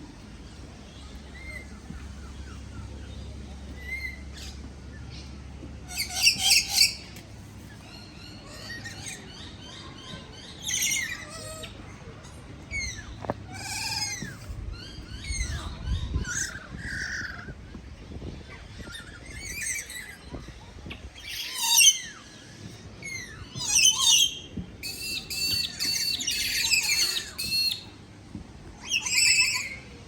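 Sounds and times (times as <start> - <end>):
birds chirping and squawking: 0.3 - 27.9, 28.8 - 30.0
loud harsh bird calls: 23.1 - 27.8.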